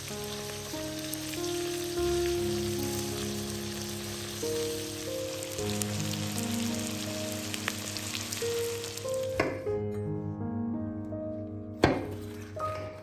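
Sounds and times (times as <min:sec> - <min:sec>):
meat sizzling in hot oil: 0:00.0 - 0:09.6
background music: 0:00.0 - 0:13.0.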